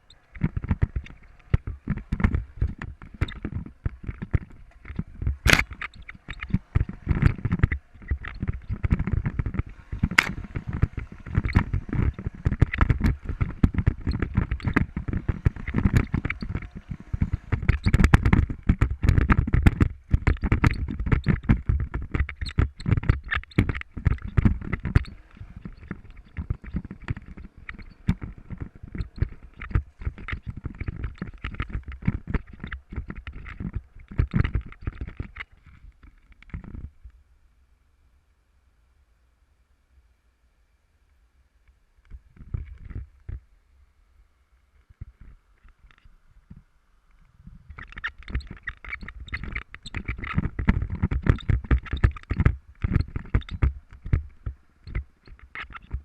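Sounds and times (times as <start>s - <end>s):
motorcycle engine rumbling: 0.0s - 35.7s
knocks and rattles: 0.3s - 36.9s, 47.7s - 56.0s.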